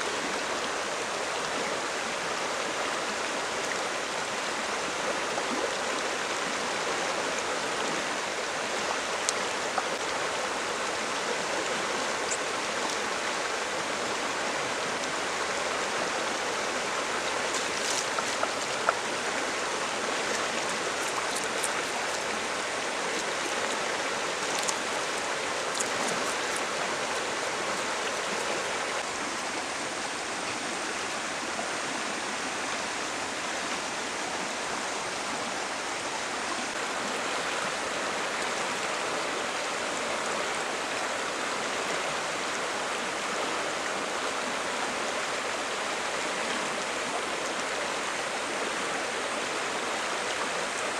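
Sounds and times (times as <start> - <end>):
stream running over rocks: 0.0 - 50.9.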